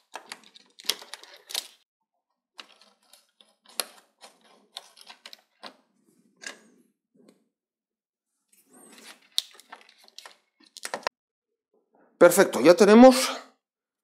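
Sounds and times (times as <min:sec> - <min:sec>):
plastic parts clicking: 0:00.0 - 0:01.8, 0:02.6 - 0:05.8.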